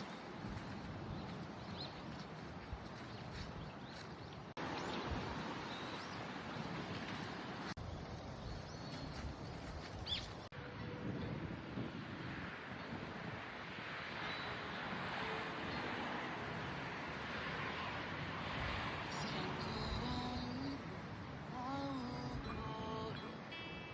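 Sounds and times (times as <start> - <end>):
wind on microphone: 0.0 - 23.3
bird chirps: 10.0 - 10.5.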